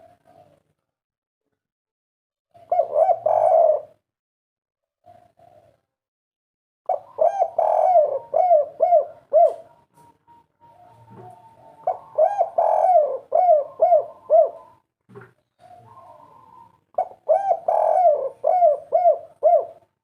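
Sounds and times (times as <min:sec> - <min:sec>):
dove cooing: 0:00.0 - 0:00.6, 0:02.5 - 0:04.0, 0:05.0 - 0:05.9, 0:06.9 - 0:14.8, 0:15.5 - 0:20.0.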